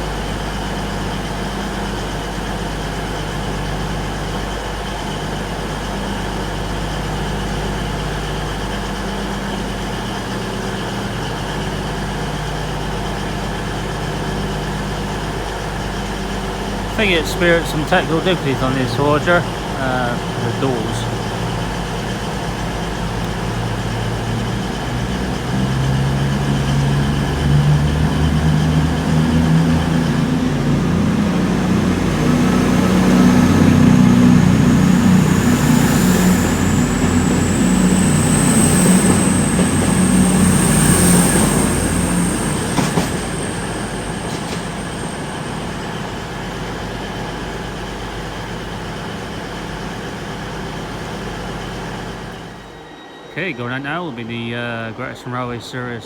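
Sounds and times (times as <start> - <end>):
diesel train engine: 0.0 - 56.0
high wheel squeal: 10.8 - 48.1, 51.6 - 55.9.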